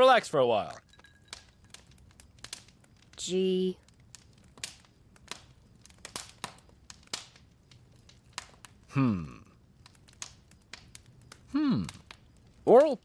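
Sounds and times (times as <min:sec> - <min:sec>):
man's sighing voice: 0:08.9 - 0:09.5, 0:11.5 - 0:11.9.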